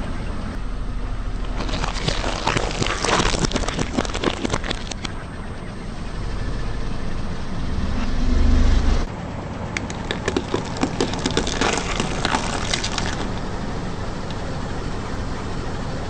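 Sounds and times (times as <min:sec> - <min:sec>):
car engine and tyres rumbling: 0:00.0 - 0:16.0
tyre crushing something brittle: 0:01.5 - 0:05.1, 0:09.8 - 0:13.4.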